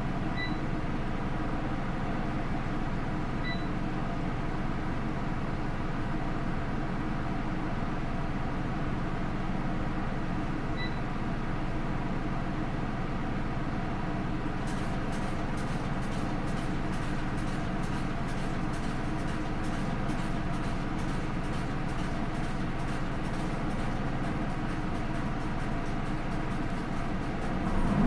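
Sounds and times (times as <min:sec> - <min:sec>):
bus engine humming: 0:26.6 - 0:28.0.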